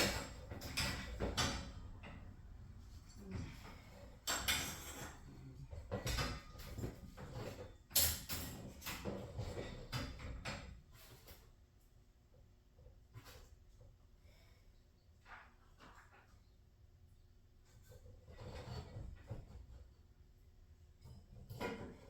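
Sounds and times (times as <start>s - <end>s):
metal clanks and knocks: 0.0s - 11.2s, 20.9s - 22.0s.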